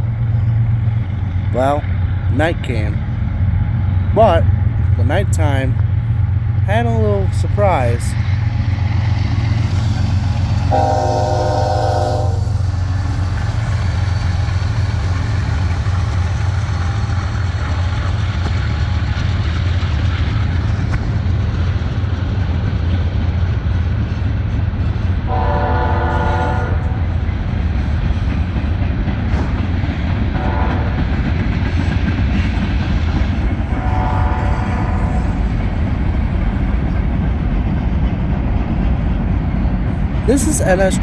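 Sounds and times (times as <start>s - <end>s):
diesel locomotive rumble: 0.0s - 41.0s
train air horn blasts: 10.6s - 12.7s, 25.3s - 27.0s, 30.4s - 31.0s, 33.8s - 35.4s.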